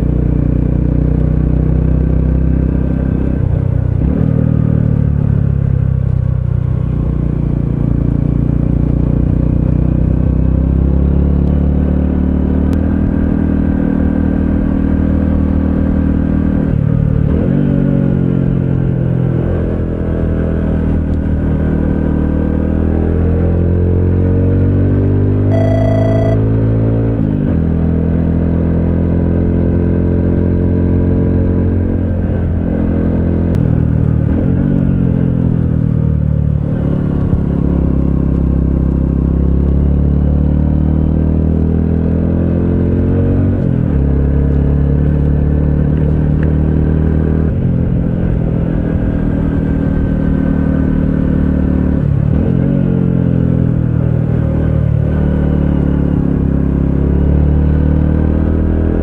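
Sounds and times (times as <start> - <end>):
motorcycle engine running: 25.5 - 26.4.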